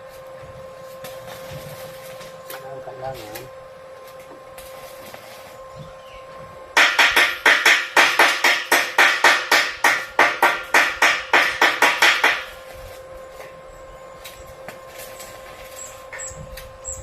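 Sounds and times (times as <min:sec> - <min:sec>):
faint steady hum: 0:00.0 - 0:17.0
hammer striking metal: 0:06.8 - 0:12.5.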